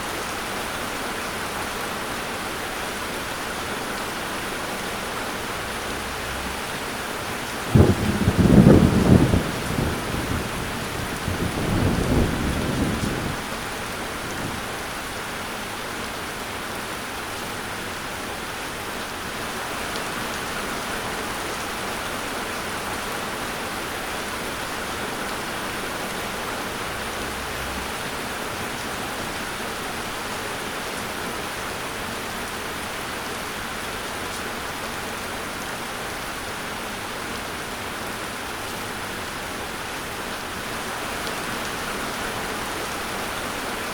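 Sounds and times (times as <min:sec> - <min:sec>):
steady rain hiss: 0:00.0 - 0:43.9
low thunder rumble: 0:05.5 - 0:14.9.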